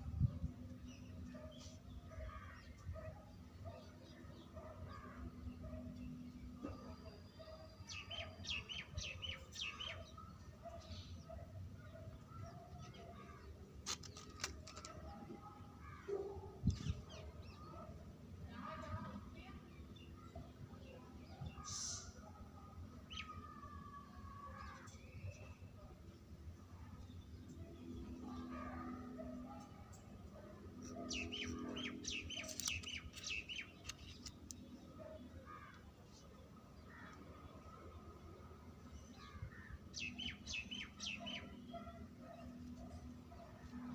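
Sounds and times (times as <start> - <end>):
small birds chirping: 27.0 - 37.2
sharp clicks: 32.2 - 34.6.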